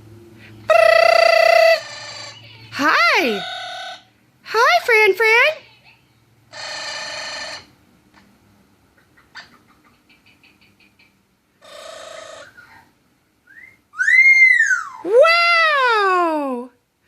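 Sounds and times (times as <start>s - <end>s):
bird whistle rising and falling: 13.5s - 15.1s.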